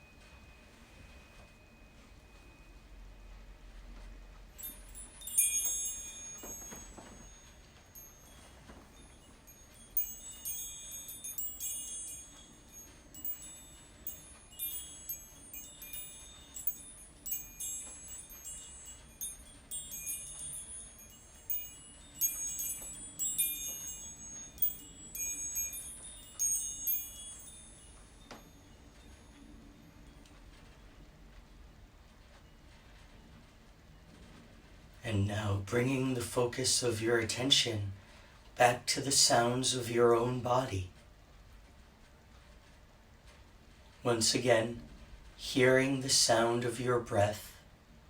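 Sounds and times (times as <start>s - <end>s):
wind chimes tinkling: 0.0s - 30.9s.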